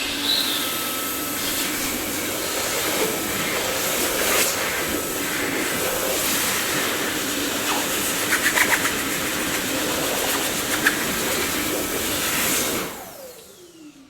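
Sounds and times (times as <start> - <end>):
vacuum cleaner running: 0.0 - 14.0
vacuum motor spinning down: 0.0 - 14.0.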